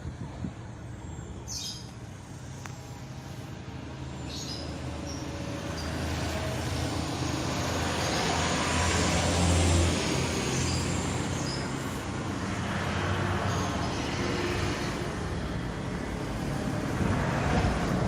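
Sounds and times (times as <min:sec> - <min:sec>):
strong wind rushing through trees: 0:04.8 - 0:18.0.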